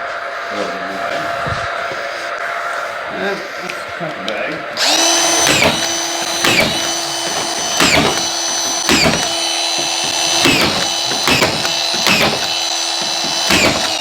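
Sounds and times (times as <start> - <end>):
cordless drill driving screws: 4.8 - 14.0.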